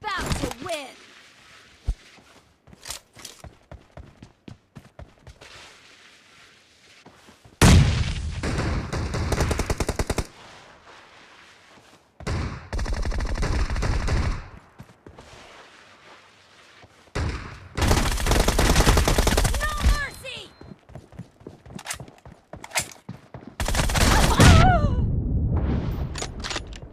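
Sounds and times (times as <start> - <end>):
video game automatic gunfire: 17.8 - 19.8.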